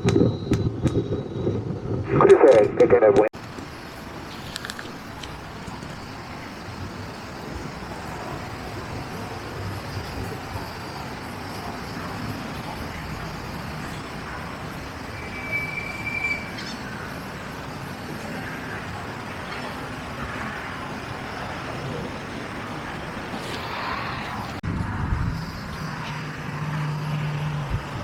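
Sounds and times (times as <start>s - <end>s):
jet engines rumbling: 0.0s - 28.0s.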